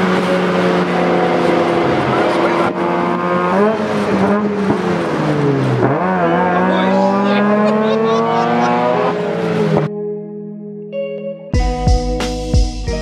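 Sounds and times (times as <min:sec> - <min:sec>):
rotary engine accelerating: 0:00.0 - 0:09.9
guitar music: 0:00.0 - 0:13.0.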